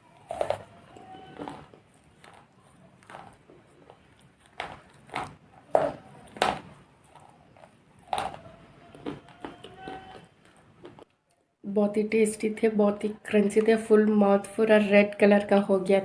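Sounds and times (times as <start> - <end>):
clay pieces crunching: 0.0 - 11.1
soft chewing: 0.0 - 11.5.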